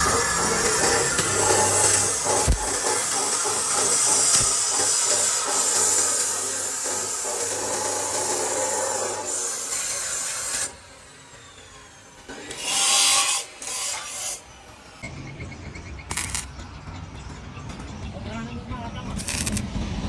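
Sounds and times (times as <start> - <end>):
hand tool rasping and scraping: 0.0 - 10.7
workshop noise: 0.0 - 20.0
sharp click: 16.1 - 16.5.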